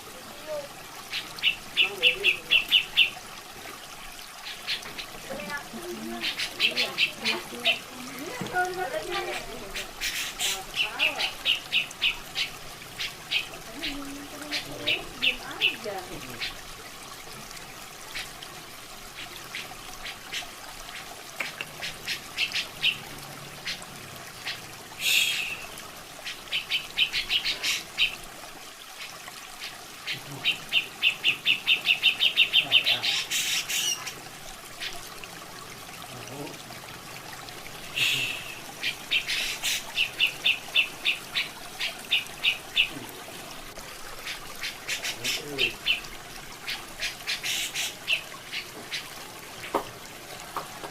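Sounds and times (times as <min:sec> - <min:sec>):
trickle of running water: 0:00.0 - 0:50.9.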